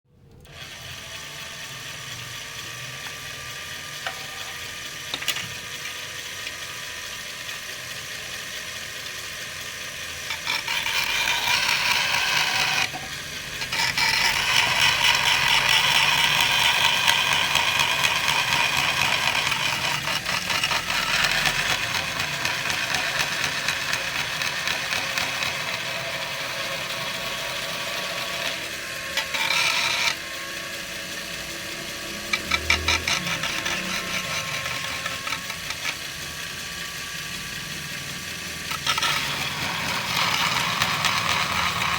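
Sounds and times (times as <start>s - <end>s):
angle grinder cutting plastic: 0.4s - 41.9s.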